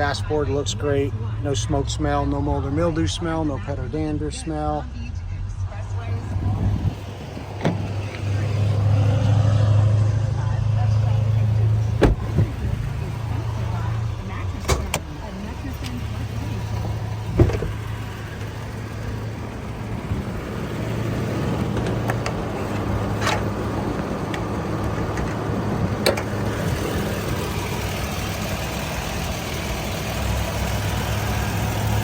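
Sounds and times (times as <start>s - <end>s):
engine idling: 0.0s - 32.0s
thump: 12.0s - 12.7s, 17.3s - 17.8s.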